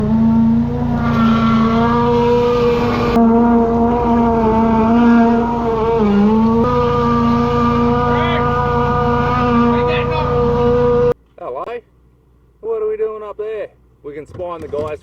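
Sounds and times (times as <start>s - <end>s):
engine running: 0.0s - 11.2s.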